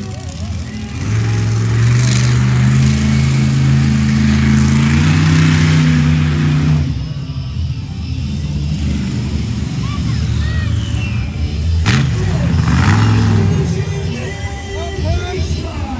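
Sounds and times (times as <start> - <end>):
engine revving hard: 0.0 - 7.1, 11.8 - 14.4.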